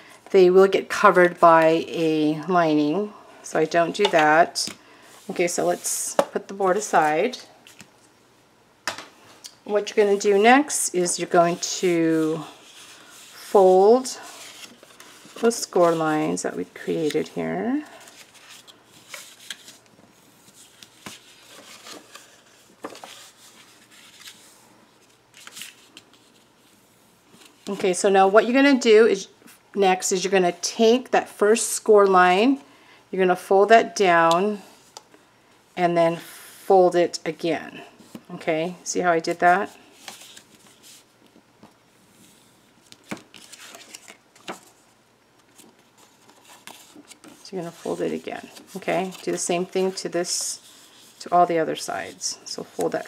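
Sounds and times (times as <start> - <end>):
paper rustling while folded: 10.0 - 27.9, 42.2 - 53.0.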